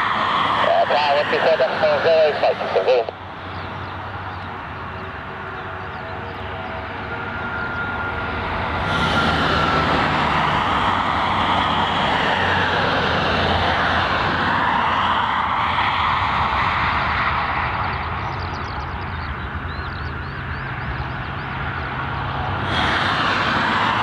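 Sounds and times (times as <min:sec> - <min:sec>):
jet engines at take-off power: 0:00.0 - 0:24.0.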